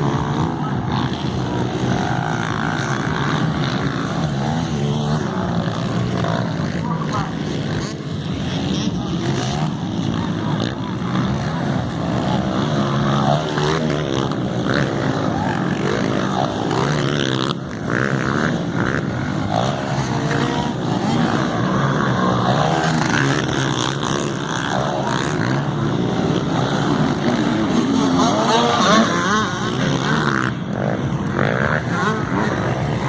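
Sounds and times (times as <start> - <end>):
motocross bikes revving: 0.0 - 33.0.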